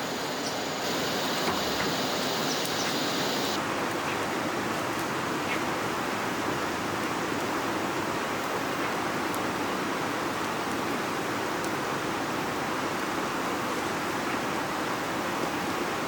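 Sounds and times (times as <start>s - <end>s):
river water rushing: 0.0s - 3.6s.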